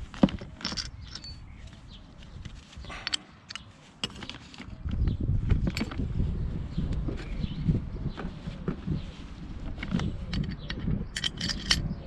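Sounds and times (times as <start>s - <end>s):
hand tools clicking and clinking: 0.1s - 4.7s, 9.7s - 12.0s.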